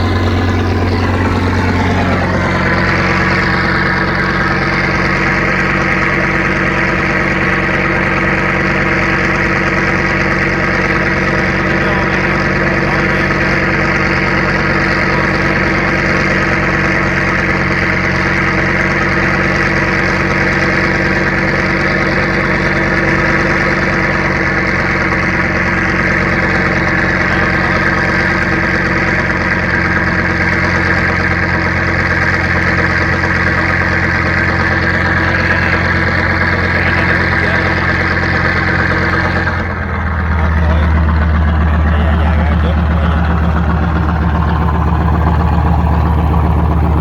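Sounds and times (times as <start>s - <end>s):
boat engine droning: 0.0s - 47.0s.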